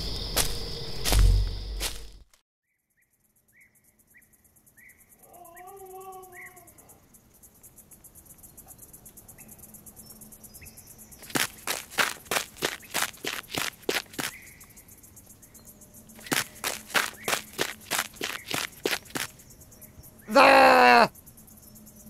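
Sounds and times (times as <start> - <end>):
insect chirping: 0.0 - 22.0
animal howl: 5.2 - 7.0, 20.3 - 21.1.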